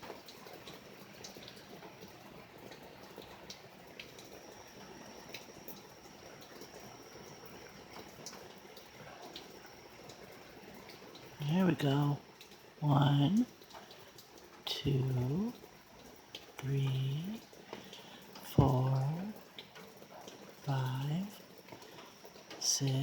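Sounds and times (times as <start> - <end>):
rain falling and dripping: 0.0 - 23.0
faint steady high tone: 4.1 - 12.2, 16.6 - 19.4, 20.1 - 23.0.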